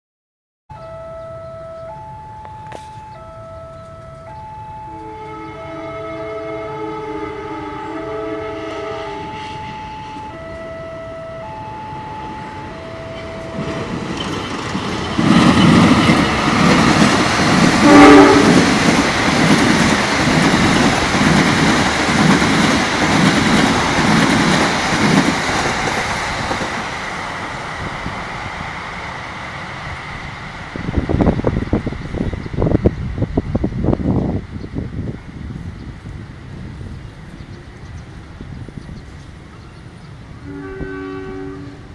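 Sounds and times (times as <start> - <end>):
train horn: 2.7 - 14.0, 17.6 - 19.0, 40.3 - 41.9
wheels clacking over rail joints: 13.1 - 27.2.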